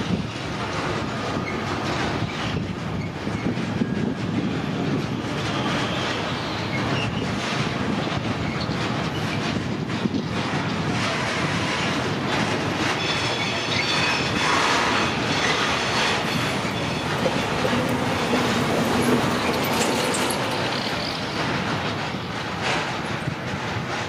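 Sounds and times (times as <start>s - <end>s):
train wheels running over rails: 0.0s - 24.0s
high wheel squeal: 12.8s - 21.6s.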